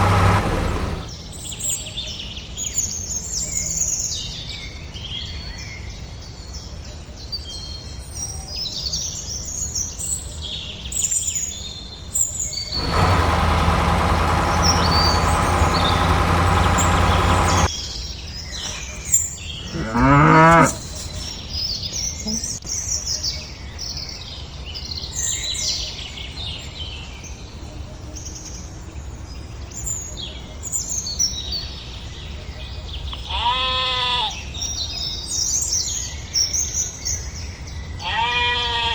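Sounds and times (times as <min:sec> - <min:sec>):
birds chirping: 0:00.0 - 0:01.1, 0:12.8 - 0:17.7
animal bleat: 0:33.3 - 0:34.3, 0:38.0 - 0:38.9.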